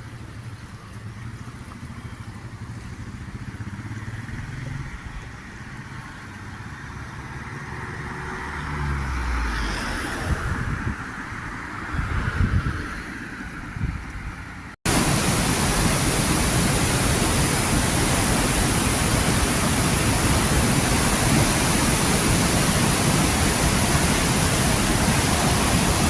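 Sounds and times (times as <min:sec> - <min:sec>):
rushing noise: 0:14.9 - 0:26.0.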